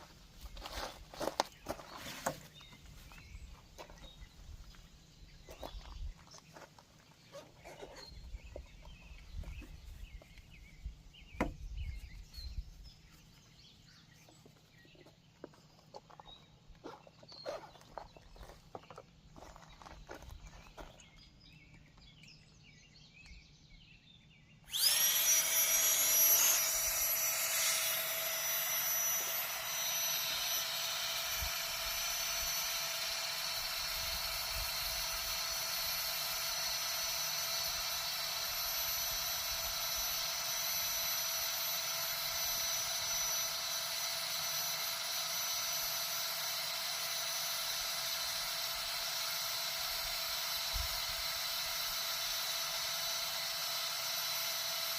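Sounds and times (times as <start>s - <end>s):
air pump motor whine: 24.6s - 54.9s.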